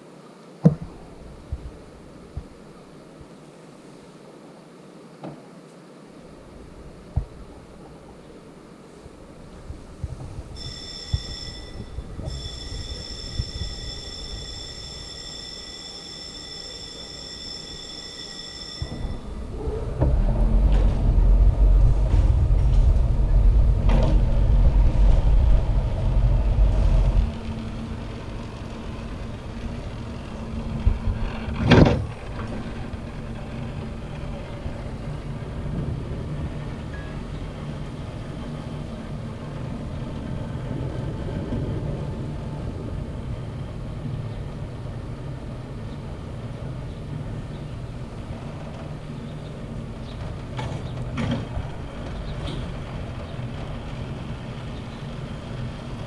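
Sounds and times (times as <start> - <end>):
low hum of running line: 0.0 - 56.0
cableway machinery rumble: 6.2 - 56.0
loud clatter: 18.9 - 38.0.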